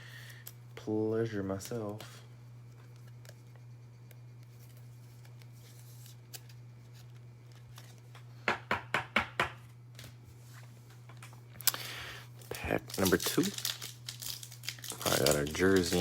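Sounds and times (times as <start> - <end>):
steady low hum: 0.0 - 16.0
card pack clicks: 12.9 - 16.0.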